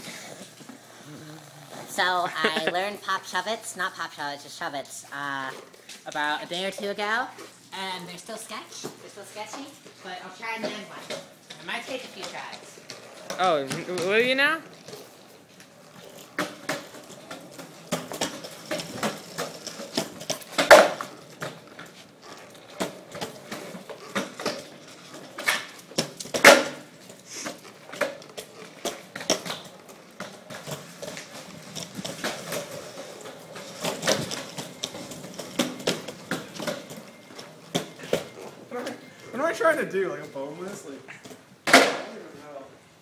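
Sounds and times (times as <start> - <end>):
longboard clattering on pavement: 16.2 - 27.1, 27.8 - 38.4.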